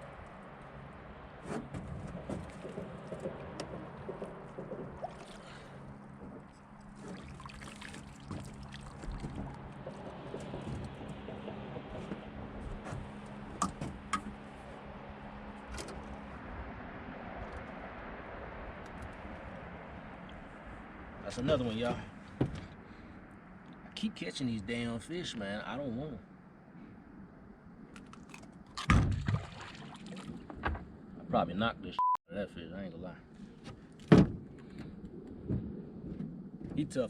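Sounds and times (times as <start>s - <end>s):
water sloshing and trickling: 0.0s - 24.0s, 28.0s - 31.1s.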